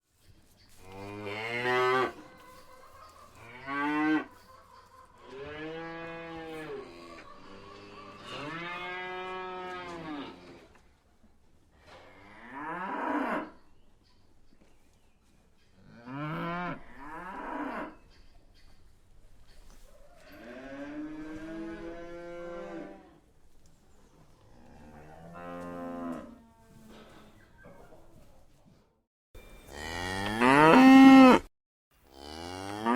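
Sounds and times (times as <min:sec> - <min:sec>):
cows mooing: 0:03.4 - 0:04.4, 0:05.3 - 0:10.5, 0:24.6 - 0:26.6, 0:29.7 - 0:31.5, 0:32.1 - 0:32.9
cow mooing: 0:24.6 - 0:26.6, 0:29.7 - 0:31.5, 0:32.1 - 0:32.9.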